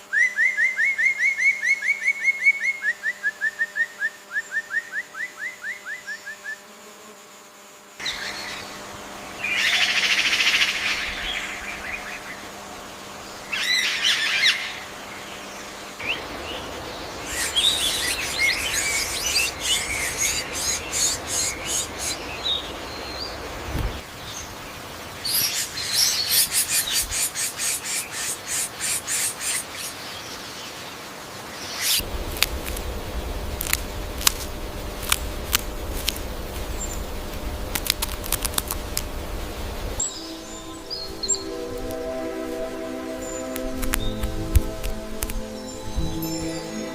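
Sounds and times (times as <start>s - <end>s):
forest background hiss: 0.0s - 46.9s
birds calling and singing: 8.0s - 12.5s, 13.2s - 46.9s
chattering bird trills: 17.2s - 22.3s.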